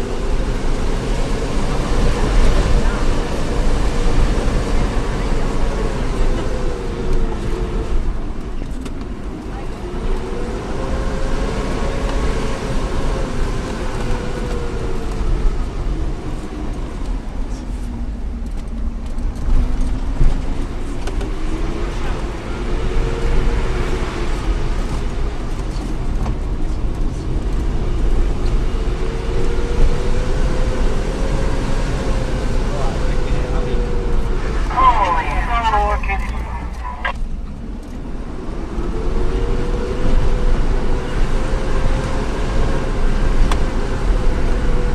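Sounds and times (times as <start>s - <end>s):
steady low rumble: 34.4s - 38.0s.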